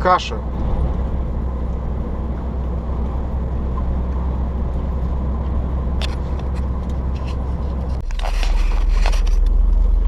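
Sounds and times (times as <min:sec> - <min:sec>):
truck driving drone from cab: 0:00.0 - 0:10.0.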